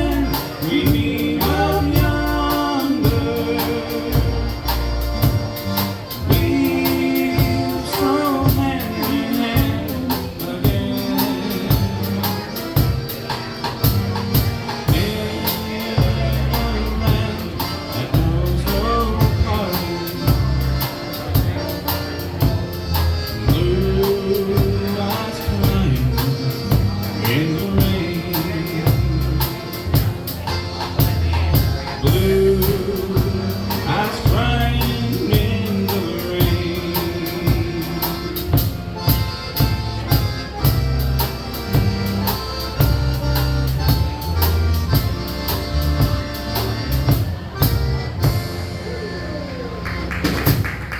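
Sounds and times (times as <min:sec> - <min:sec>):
person singing: 0:00.0 - 0:04.6, 0:06.3 - 0:11.9, 0:32.0 - 0:38.7
band playing country ballad: 0:00.0 - 0:50.9.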